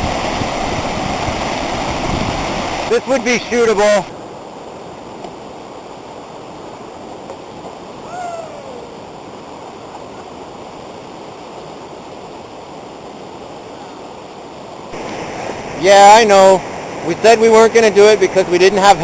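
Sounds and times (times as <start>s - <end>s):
river rapids rushing over rocks: 0.0s - 19.0s
short falling call: 8.0s - 8.9s.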